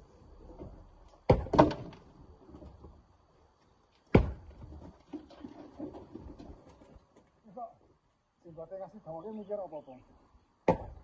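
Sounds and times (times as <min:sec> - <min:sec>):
rock being struck: 0:04.1 - 0:04.5, 0:10.6 - 0:11.0.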